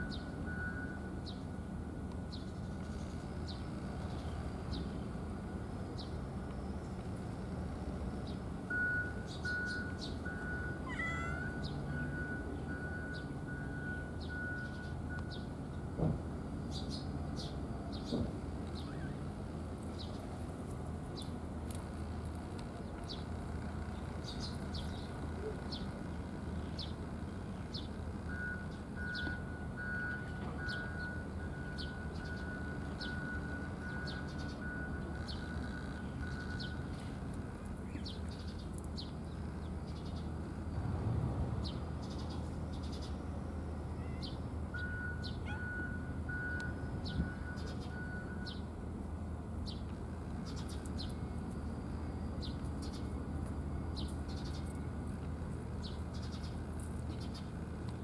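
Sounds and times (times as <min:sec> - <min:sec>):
small bird chirping: 0:16.7 - 0:19.3.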